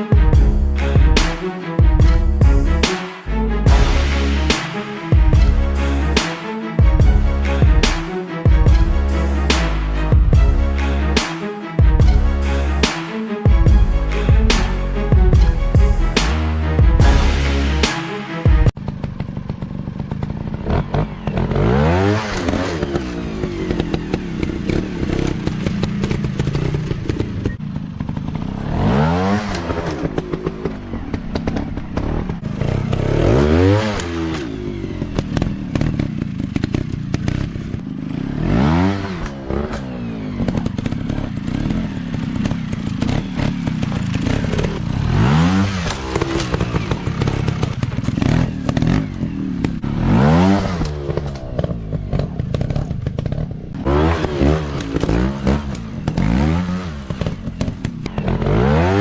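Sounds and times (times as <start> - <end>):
dirt bike engines revving: 18.8 - 59.0.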